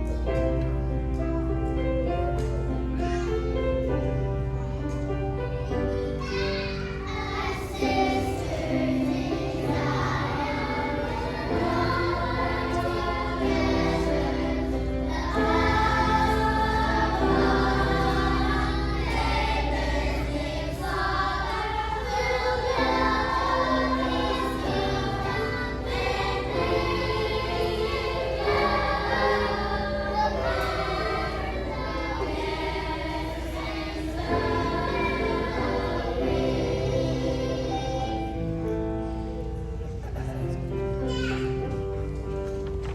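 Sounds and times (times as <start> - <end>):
children's choir singing: 0.0 - 42.9
musical accompaniment: 0.0 - 42.9.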